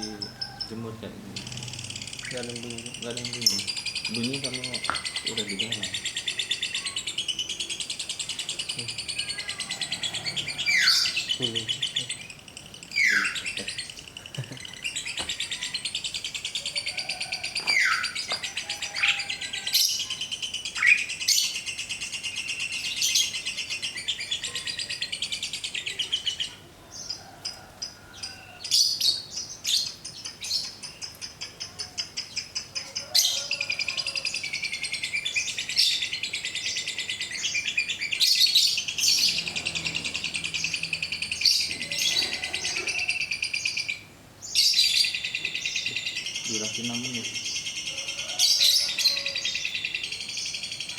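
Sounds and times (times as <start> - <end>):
falling whistled bird calls: 0.0 - 16.0
songbird chattering trill: 0.0 - 27.1, 28.6 - 50.9.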